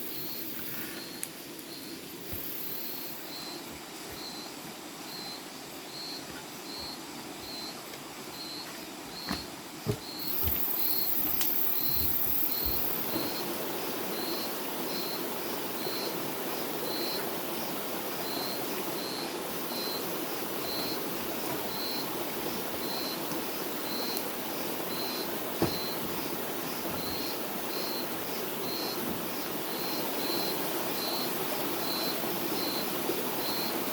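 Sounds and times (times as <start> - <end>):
insect chirping: 0.0 - 33.9
soft knocks: 9.2 - 13.3.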